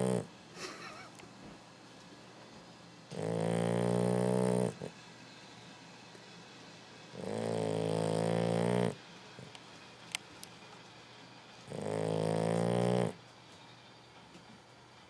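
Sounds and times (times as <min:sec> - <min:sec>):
puppy snoring: 0:00.0 - 0:00.3, 0:03.1 - 0:05.0, 0:07.1 - 0:09.6, 0:11.6 - 0:13.3.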